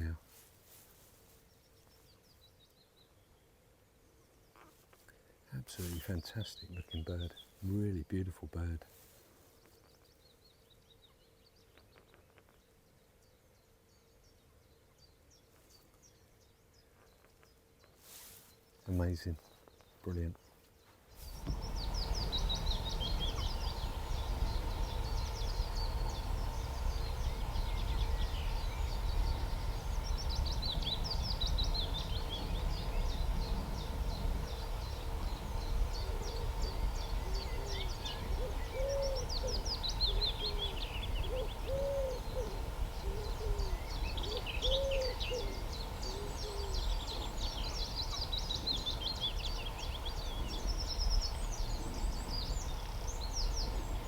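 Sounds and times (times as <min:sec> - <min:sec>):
small birds chirping and singing: 0:09.5 - 0:54.0
steady low rumble: 0:21.2 - 0:54.0
low cooing or hooting call: 0:25.9 - 0:46.9.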